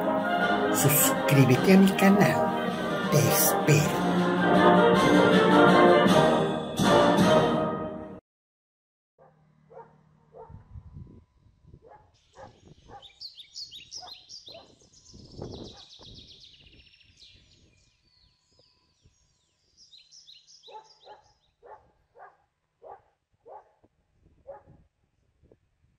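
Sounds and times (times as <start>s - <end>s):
birds chirping and trilling: 11.8s - 23.7s.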